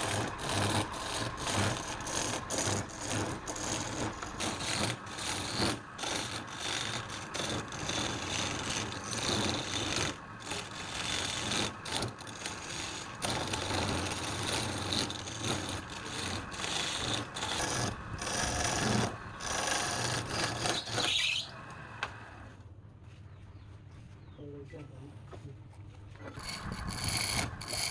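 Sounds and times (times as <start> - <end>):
tool rasping against wood: 0.0 - 21.6, 26.3 - 27.9.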